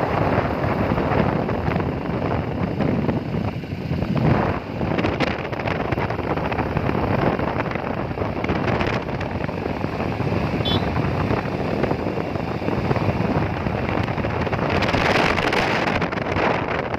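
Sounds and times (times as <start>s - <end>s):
road and vehicle noise: 0.0s - 16.9s
wind rushing over microphone: 0.0s - 16.9s
faint high beep: 10.7s - 10.9s.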